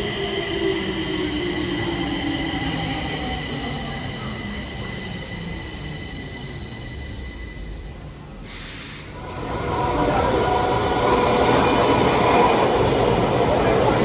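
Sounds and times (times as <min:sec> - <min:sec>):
metro train whine: 0:00.0 - 0:14.0
train running with droning tones: 0:00.0 - 0:14.0
short hiss: 0:08.5 - 0:09.2.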